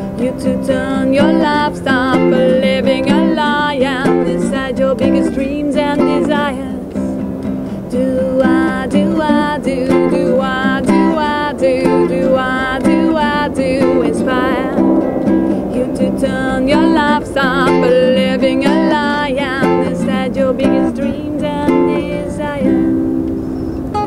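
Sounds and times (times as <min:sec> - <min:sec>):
woman singing: 0:00.0 - 0:23.2
strummed acoustic guitar: 0:00.0 - 0:24.0.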